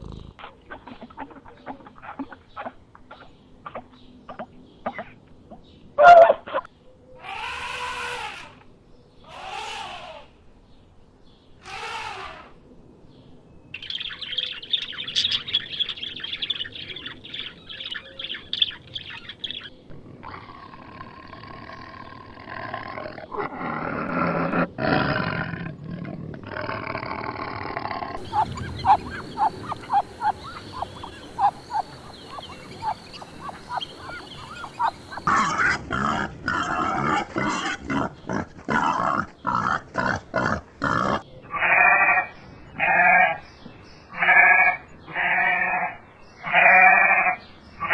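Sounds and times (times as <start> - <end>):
animal calls: 9.3 - 10.3, 11.6 - 12.5, 28.2 - 35.3
fast high chirping: 28.2 - 35.3.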